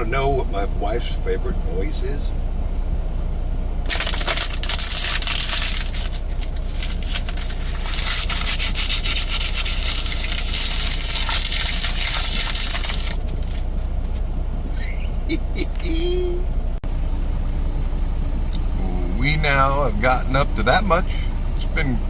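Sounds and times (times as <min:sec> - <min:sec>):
low hum: 0:00.0 - 0:22.0
bulk product pouring: 0:03.9 - 0:13.9.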